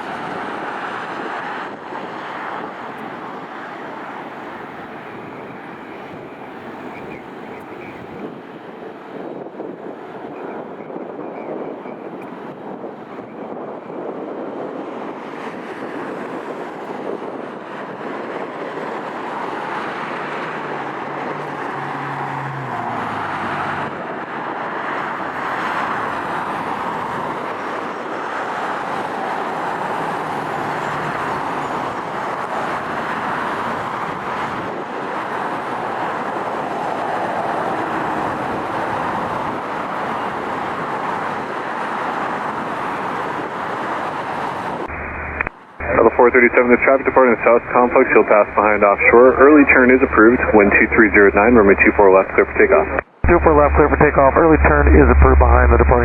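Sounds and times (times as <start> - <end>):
jet engine noise: 45.9 - 56.0.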